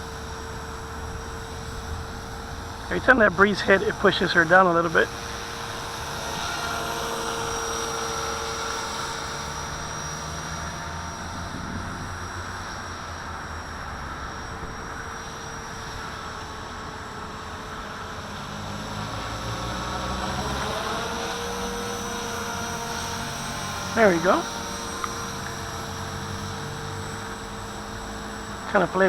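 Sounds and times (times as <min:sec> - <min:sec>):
rc helicopter motor whine: 0:00.0 - 0:29.0
wind buffeting microphone: 0:10.8 - 0:13.0.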